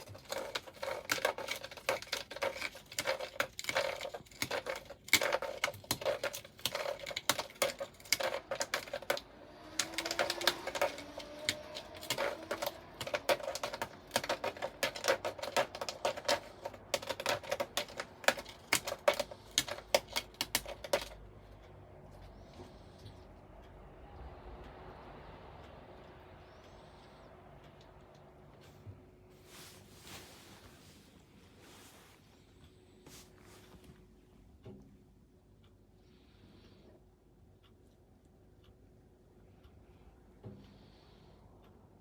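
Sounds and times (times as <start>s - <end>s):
cat claws scratching a board: 0.0s - 21.2s.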